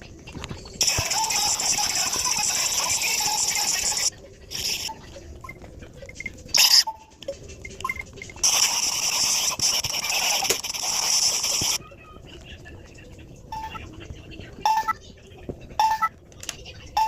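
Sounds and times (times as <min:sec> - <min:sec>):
scratching and scraping: 0:07.5 - 0:12.6.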